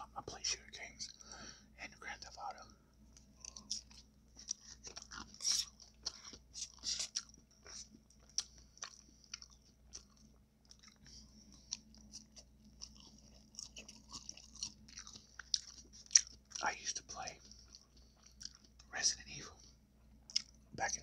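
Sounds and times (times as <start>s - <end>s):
person chewing food: 3.0s - 16.6s, 17.3s - 18.9s, 19.6s - 20.7s.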